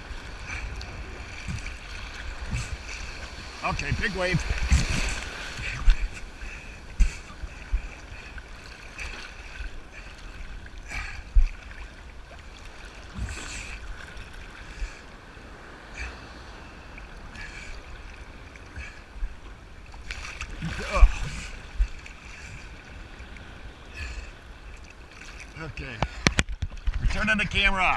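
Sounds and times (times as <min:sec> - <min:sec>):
wind buffeting microphone: 0:00.0 - 0:08.6
surf sloshing around legs: 0:00.0 - 0:27.9
water splashes: 0:00.0 - 0:27.9.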